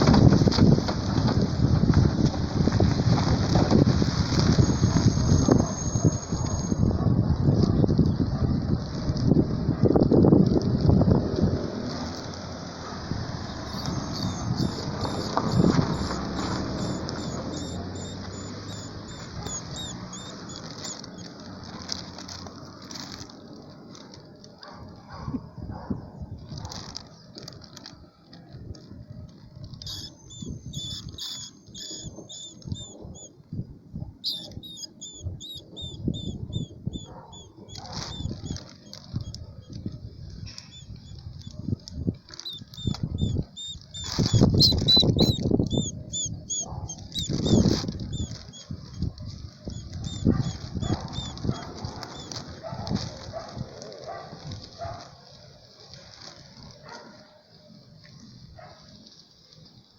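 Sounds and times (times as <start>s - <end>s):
small animal squeaking: 13.5s - 21.4s, 29.8s - 33.3s, 34.2s - 39.8s, 40.5s - 41.6s, 42.3s - 52.6s
short high chirps: 29.9s - 33.3s, 34.2s - 36.7s, 42.4s - 47.6s.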